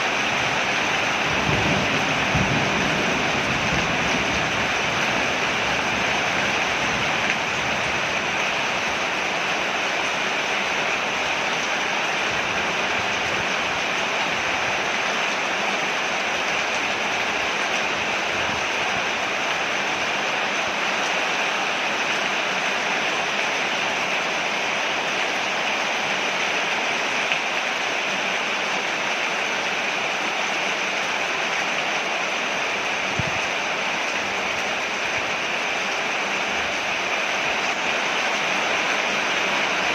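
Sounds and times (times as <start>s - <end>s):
heavy rain on a porch: 0.0s - 39.9s.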